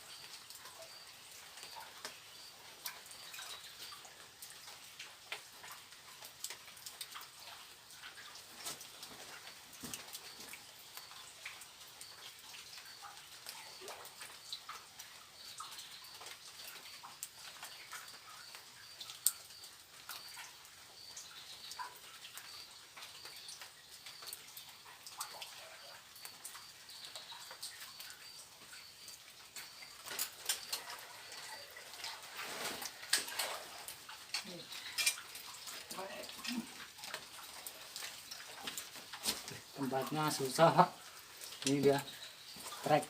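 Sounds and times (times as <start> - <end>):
insects chirping: 0.0 - 6.3, 7.2 - 43.0
steady high hiss: 38.0 - 43.0.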